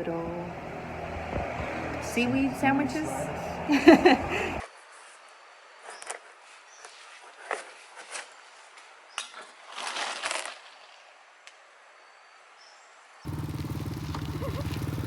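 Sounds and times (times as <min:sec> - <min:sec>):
rustling: 0:09.4 - 0:11.0.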